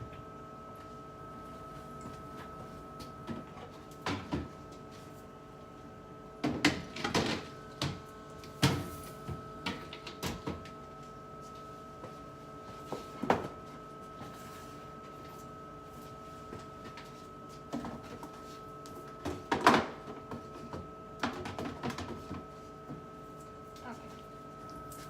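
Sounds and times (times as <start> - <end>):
refrigerator hum: 0.0 - 25.0.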